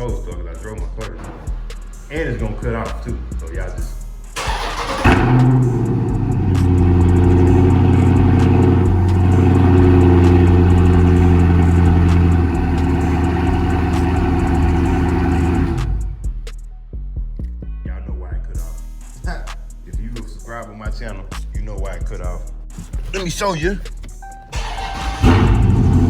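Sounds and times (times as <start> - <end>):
car engine idling: 1.1 - 16.4, 22.6 - 26.0.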